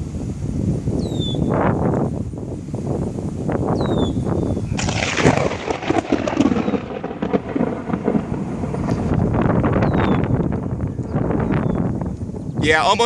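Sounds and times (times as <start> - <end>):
thunder crack and rumble: 4.8 - 13.0.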